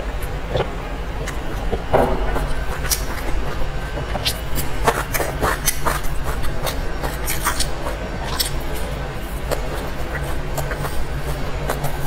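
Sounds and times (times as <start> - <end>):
steady low hum: 0.0 - 12.0
chewing and mouth sounds: 0.2 - 12.0.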